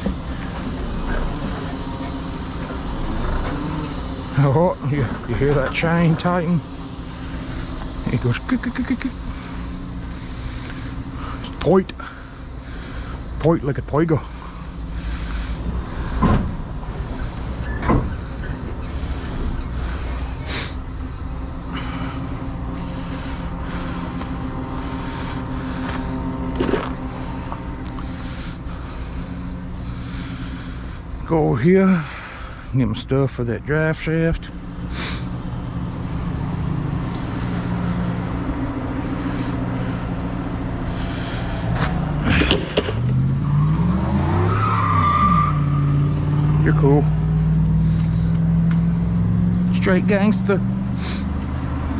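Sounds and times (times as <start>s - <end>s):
vehicle driving past: 0.0s - 32.7s, 34.4s - 51.9s
diesel engine idling: 0.0s - 51.9s.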